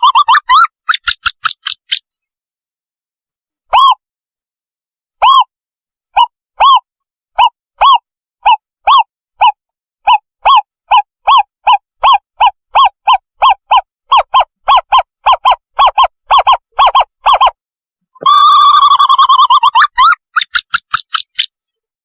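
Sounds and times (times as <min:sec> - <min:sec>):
owl call hooting and trilling: 0:00.0 - 0:02.0, 0:03.7 - 0:04.0, 0:05.2 - 0:05.5, 0:06.2 - 0:17.6, 0:18.2 - 0:21.6.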